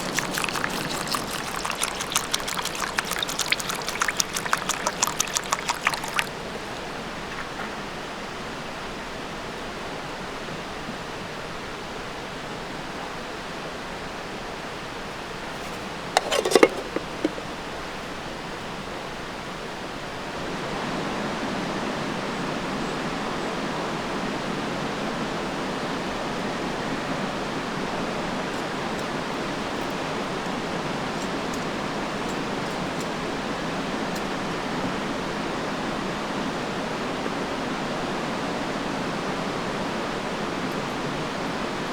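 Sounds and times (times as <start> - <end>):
running water rushing: 0.0 - 7.9, 15.6 - 17.5.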